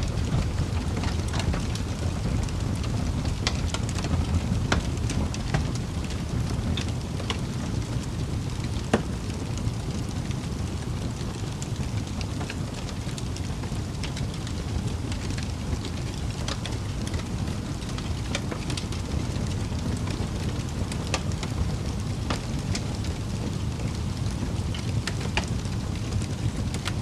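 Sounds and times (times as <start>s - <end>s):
low rumble of burning fire: 0.0s - 27.0s
wood fire crackling and popping: 0.0s - 27.0s.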